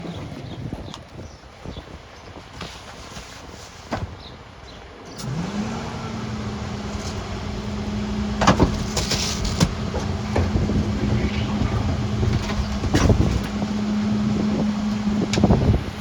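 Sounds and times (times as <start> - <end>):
truck engine humming: 5.2 - 16.0
sharp knocks and clatters: 8.4 - 13.6.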